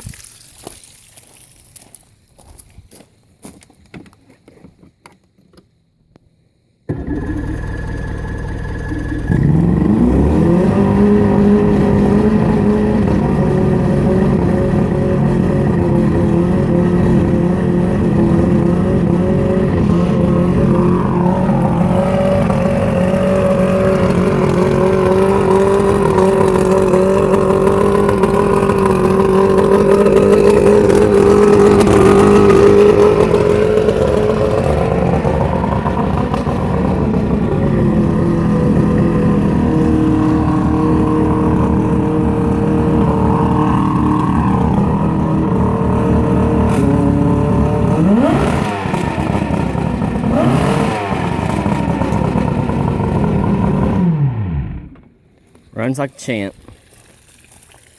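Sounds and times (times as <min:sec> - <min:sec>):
outboard motor revving: 0:06.9 - 0:55.2.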